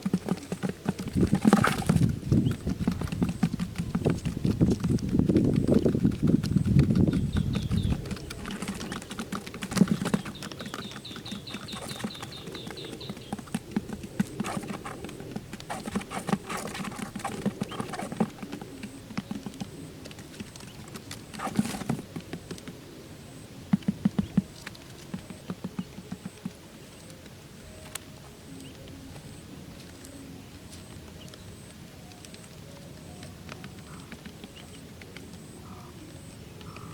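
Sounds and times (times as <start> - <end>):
fast run of ticks: 0.0 - 22.8.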